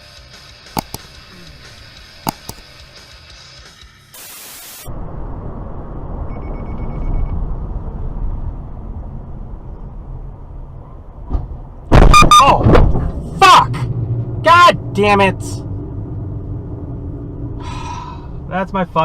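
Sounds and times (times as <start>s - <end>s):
car driving on road: 0.5s - 3.2s, 4.9s - 19.0s
loud hiss: 4.1s - 4.9s
rapid electronic beeps: 12.1s - 12.5s.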